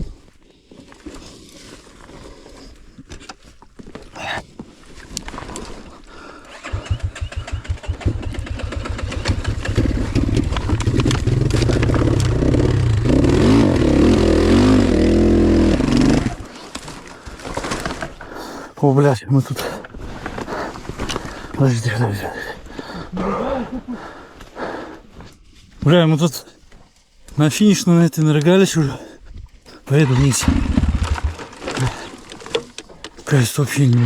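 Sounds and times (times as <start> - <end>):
motorcycle engine revving: 6.5 - 16.5, 30.0 - 32.0.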